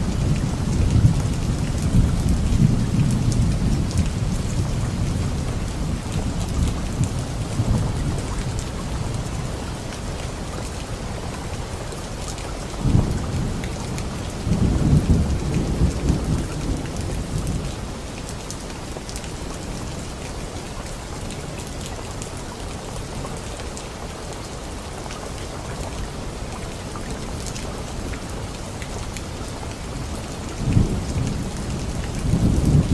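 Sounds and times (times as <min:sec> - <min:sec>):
steady rain: 0:00.0 - 0:32.9
thunder rumbling and cracking: 0:12.8 - 0:17.8, 0:30.6 - 0:32.9.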